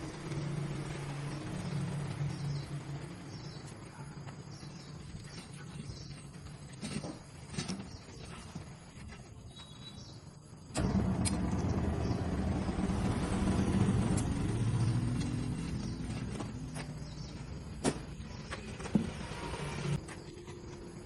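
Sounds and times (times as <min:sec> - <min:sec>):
vehicle engine rumbling: 0:00.0 - 0:08.9, 0:10.6 - 0:21.0.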